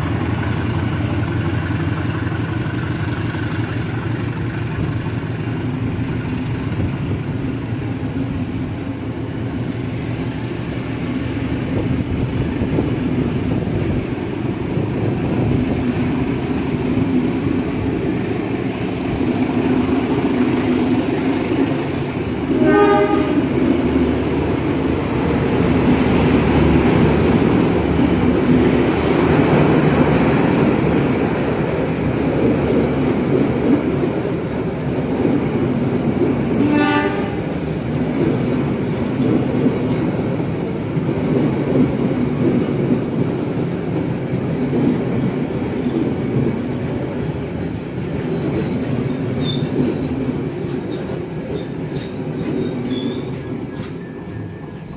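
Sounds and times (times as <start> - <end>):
train rumble: 0.0 - 54.9
train horn blasts: 22.5 - 23.6, 36.5 - 37.6.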